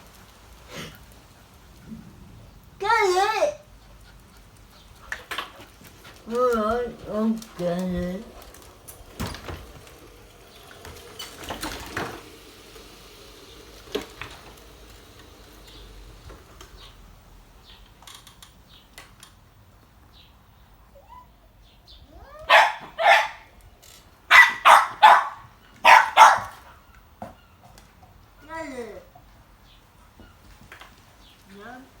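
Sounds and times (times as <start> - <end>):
faint rustling: 3.6 - 19.1
dog barking: 22.3 - 23.5, 24.3 - 26.6.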